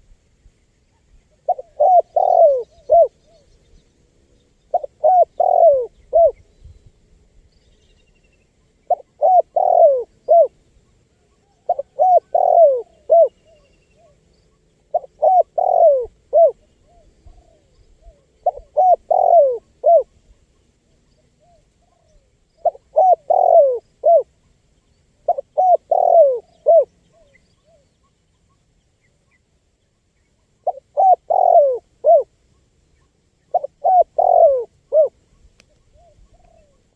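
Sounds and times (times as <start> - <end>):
dove cooing: 1.4 - 3.5, 4.7 - 6.4, 8.9 - 14.2, 14.9 - 20.3, 21.4 - 24.3, 25.2 - 27.8, 30.6 - 32.3, 33.5 - 36.9.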